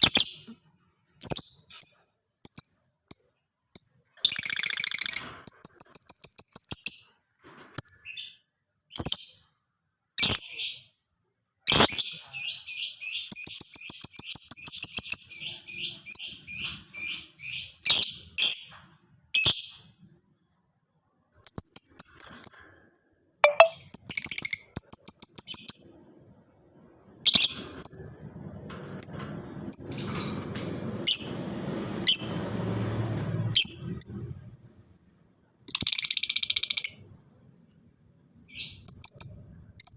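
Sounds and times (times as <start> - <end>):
lovebird chirping: 1.2 - 7.2, 7.8 - 9.5, 11.7 - 18.8, 21.3 - 22.8, 23.4 - 26.1, 35.7 - 39.9.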